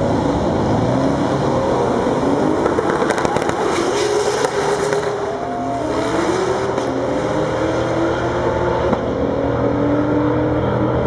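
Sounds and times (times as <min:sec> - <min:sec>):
car engine revving: 0:00.0 - 0:11.0
crackling exhaust pops: 0:02.6 - 0:05.2.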